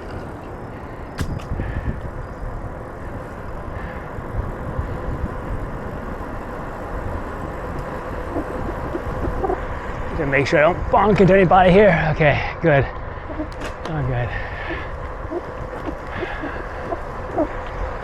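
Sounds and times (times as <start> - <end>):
wind on microphone: 0.0 - 11.6, 13.0 - 18.0
bicycle tyres rolling on trail: 0.0 - 18.0
sharp click: 1.2 - 1.6.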